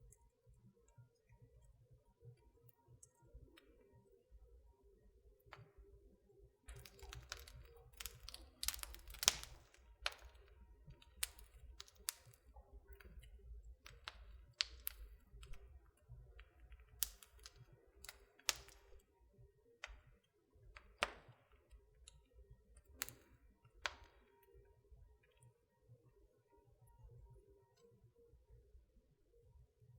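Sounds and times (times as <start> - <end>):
logs crackling and popping: 6.7 - 19.1, 19.8 - 24.5.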